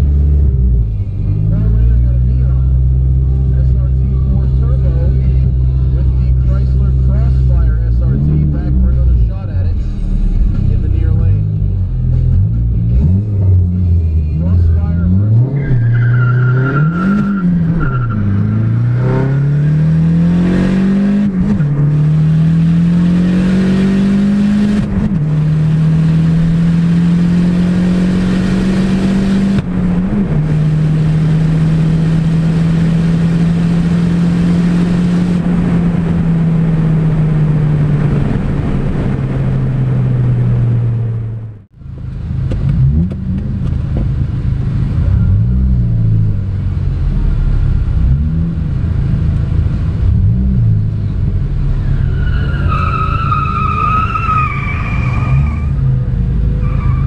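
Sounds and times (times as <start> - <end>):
car engine revving: 0.0 - 57.0
wind and road noise: 0.0 - 57.0.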